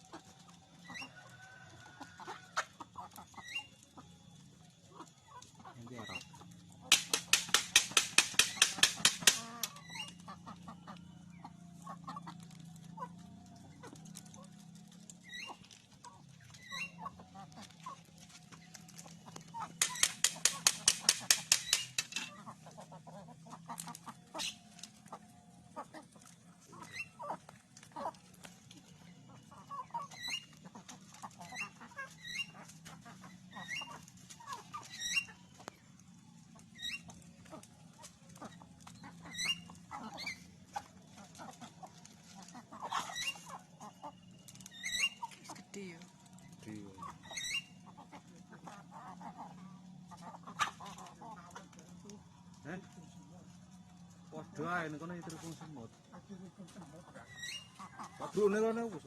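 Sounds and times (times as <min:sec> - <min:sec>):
chickens clucking: 0:00.0 - 0:59.0
chicken wings flapping: 0:06.8 - 0:09.8, 0:17.6 - 0:22.2.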